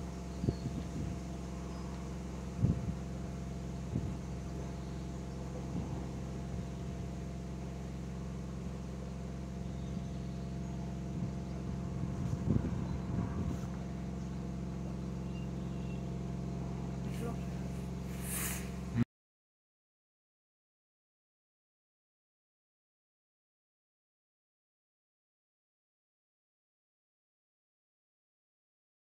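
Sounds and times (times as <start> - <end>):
electric boat drive humming: 0.0 - 19.0.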